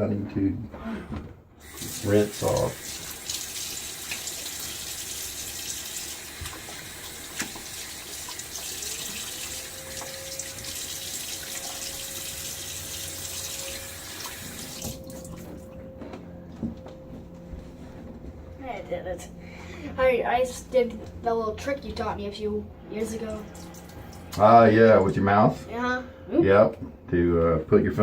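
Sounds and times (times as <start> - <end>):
tap running into sink: 1.6 - 15.5
faint steady whistle: 9.6 - 16.5.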